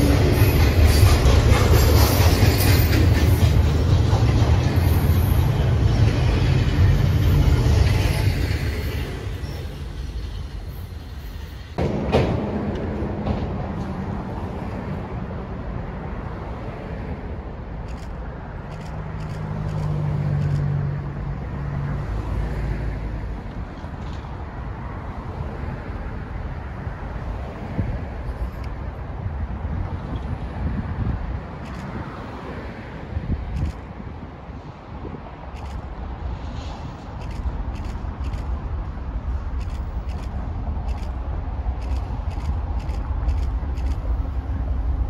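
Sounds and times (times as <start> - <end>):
freight train rumbling and clacking: 0.0 - 45.0
steady low rumble: 33.1 - 45.0.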